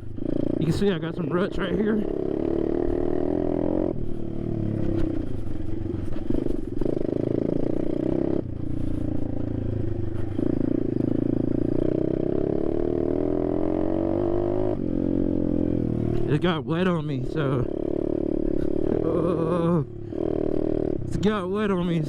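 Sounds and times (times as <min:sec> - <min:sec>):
pit bike engine revving: 0:10.3 - 0:22.0.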